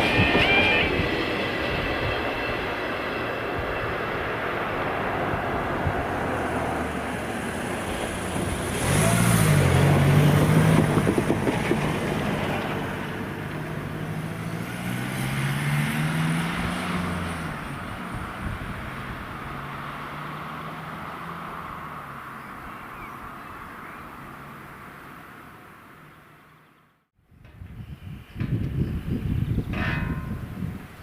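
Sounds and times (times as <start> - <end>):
vehicle engine passing: 3.5 - 26.5.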